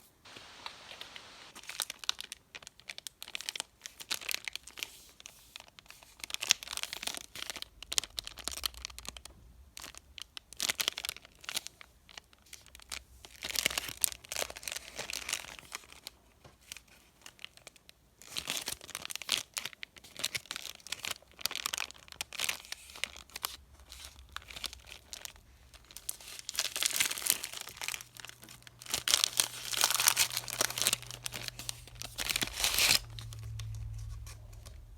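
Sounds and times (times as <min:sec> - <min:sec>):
candy wrappers crinkling: 0:00.3 - 0:34.9.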